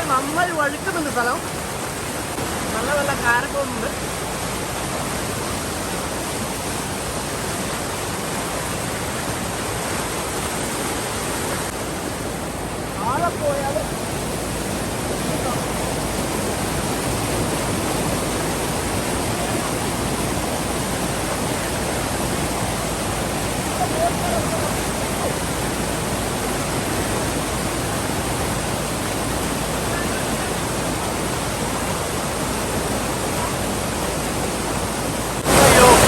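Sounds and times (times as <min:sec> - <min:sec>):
waterfall and rocky stream rushing: 0:00.0 - 0:36.0.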